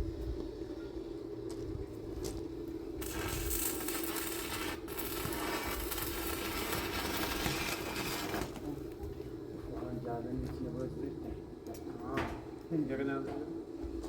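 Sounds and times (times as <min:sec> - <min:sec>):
welding arc crackling hiss: 0:01.5 - 0:09.2.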